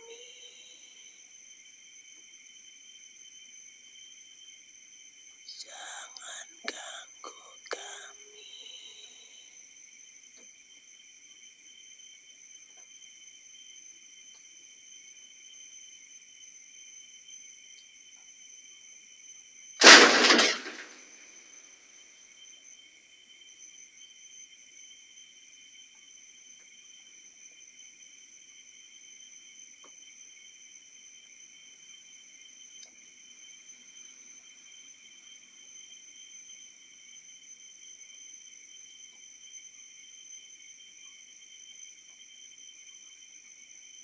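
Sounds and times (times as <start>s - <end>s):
crickets chirping: 0.0s - 44.0s
loud crash: 19.8s - 21.2s.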